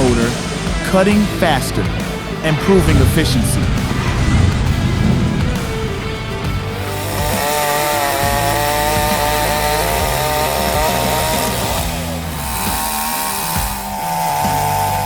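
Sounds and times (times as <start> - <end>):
chainsaw cutting wood: 5.8 - 15.0.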